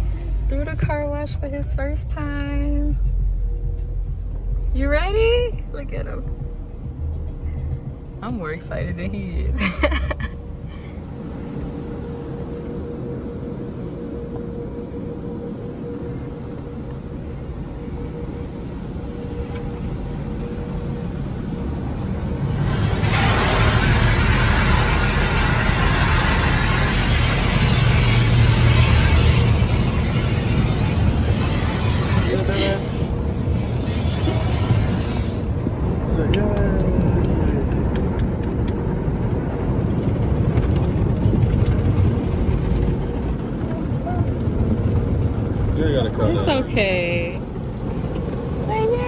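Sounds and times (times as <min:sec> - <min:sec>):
low rumble in car: 0:00.0 - 0:49.0
car wash rushing hiss: 0:11.0 - 0:36.7.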